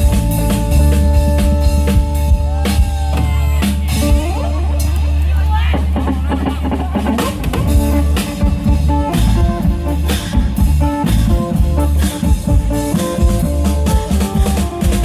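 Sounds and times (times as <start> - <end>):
heavy bass: 0.0 - 15.0.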